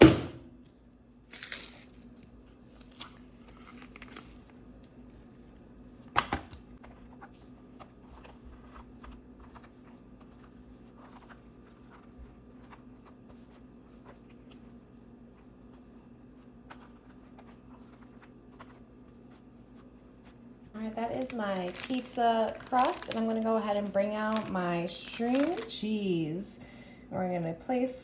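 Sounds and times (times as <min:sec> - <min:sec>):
sharp knocks: 0:00.0 - 0:00.4
low steady hum: 0:00.0 - 0:28.0
packaging crinkling and tearing: 0:01.3 - 0:02.1, 0:02.7 - 0:05.2, 0:20.8 - 0:25.8.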